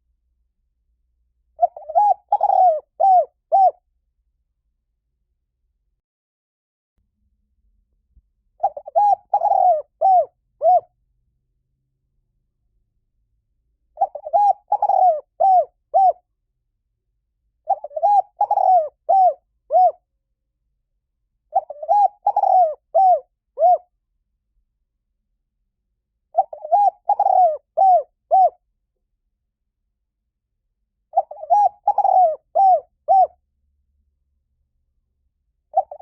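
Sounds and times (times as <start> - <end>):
dove cooing: 1.6 - 3.8, 8.6 - 10.9, 14.0 - 16.2, 17.6 - 20.0, 21.5 - 23.9, 26.3 - 28.6, 31.1 - 33.4, 35.7 - 36.0.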